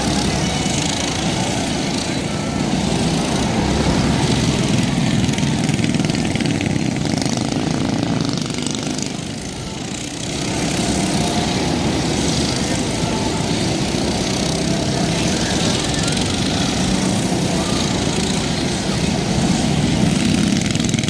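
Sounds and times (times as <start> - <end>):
mini bike engines racing: 0.0 - 21.0.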